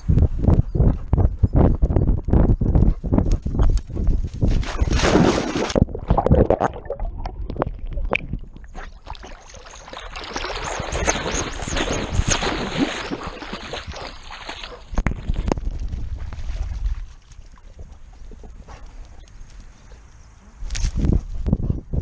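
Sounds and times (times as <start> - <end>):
dog splashing in water: 4.6 - 6.2, 8.8 - 15.5.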